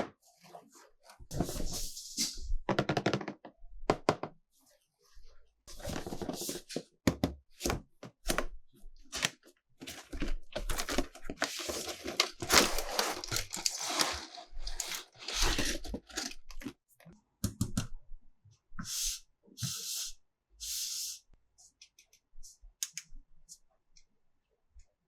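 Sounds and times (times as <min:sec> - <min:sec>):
packaging tearing and crinkling: 0:10.1 - 0:16.7.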